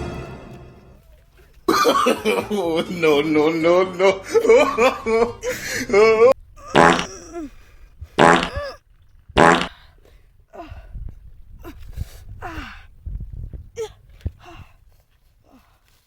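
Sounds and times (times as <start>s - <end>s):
fart noises: 6.7s - 7.2s, 8.2s - 8.8s, 9.4s - 9.8s.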